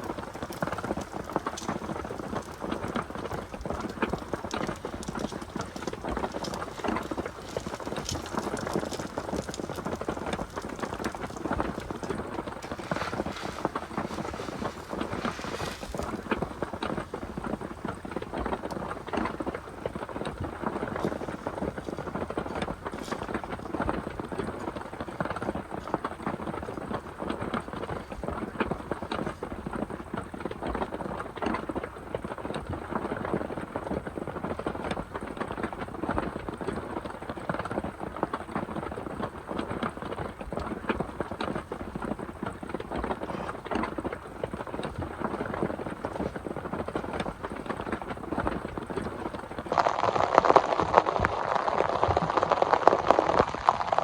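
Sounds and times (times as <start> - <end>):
rain drops ticking on surface: 0.0 - 54.0.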